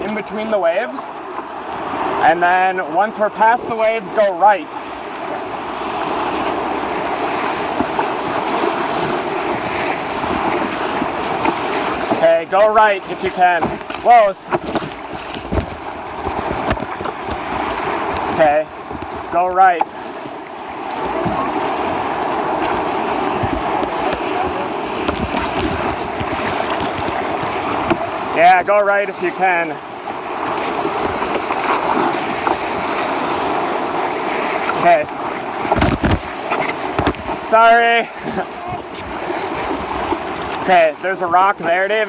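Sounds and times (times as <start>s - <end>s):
whitewater rushing: 0.0s - 42.0s
low thumps: 13.6s - 28.1s.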